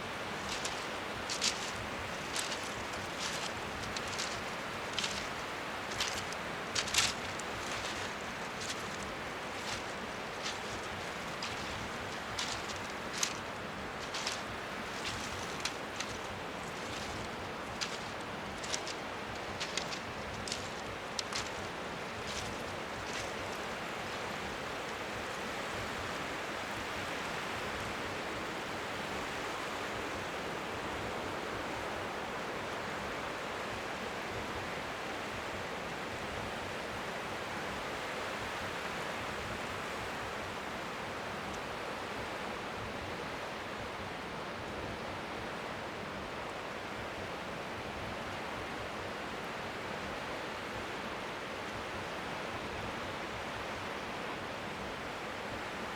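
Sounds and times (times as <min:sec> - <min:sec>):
waves lapping at shore: 0:00.0 - 0:55.9
light ticks: 0:00.4 - 0:25.4.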